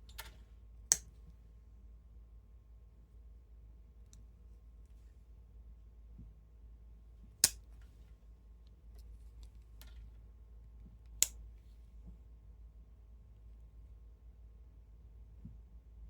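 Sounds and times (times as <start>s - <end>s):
pocketknife blade snapping into place: 7.4s - 7.6s.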